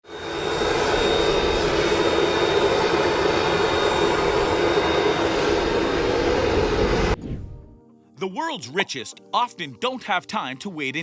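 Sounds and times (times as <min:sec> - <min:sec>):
high turbine whine: 0:00.0 - 0:07.6
jet engine running: 0:00.0 - 0:07.6.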